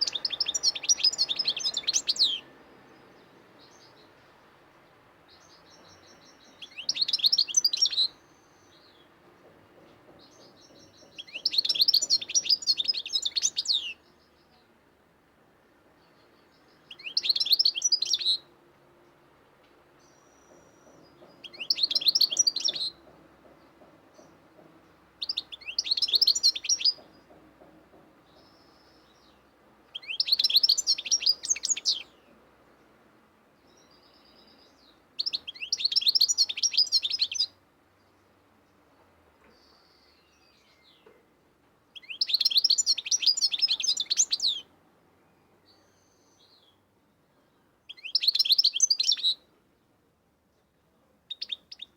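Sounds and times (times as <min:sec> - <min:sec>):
cage bird chirping: 0:00.0 - 0:14.8, 0:16.0 - 0:41.2, 0:41.9 - 0:49.9, 0:50.5 - 0:51.9.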